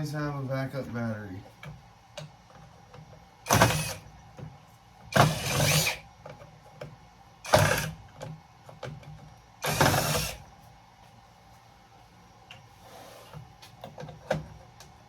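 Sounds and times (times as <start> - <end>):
cordless power drill running: 3.5 - 4.1, 5.1 - 6.0, 7.5 - 8.0, 9.6 - 10.4.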